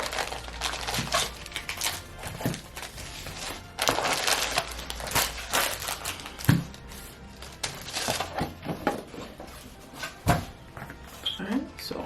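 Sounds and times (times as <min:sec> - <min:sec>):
snack packaging rustling: 0:00.0 - 0:08.6.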